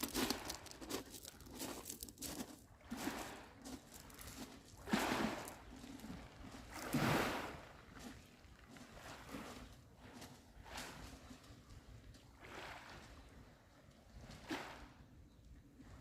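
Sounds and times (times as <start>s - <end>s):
pebbles rattling: 0.0s - 2.6s, 3.6s - 4.6s
waves washing over pebbles: 0.0s - 7.8s.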